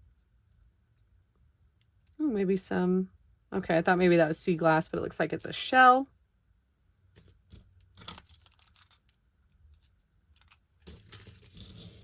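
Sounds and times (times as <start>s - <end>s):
jewelry clinking and jingling: 8.0s - 12.0s.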